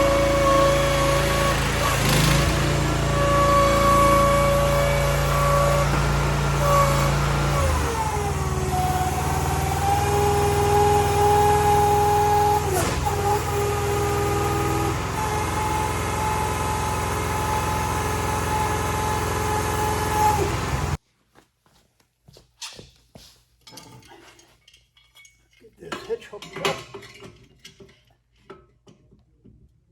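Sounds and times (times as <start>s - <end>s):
hydraulics: 0.0s - 21.0s
small gasoline engine running: 0.0s - 21.0s.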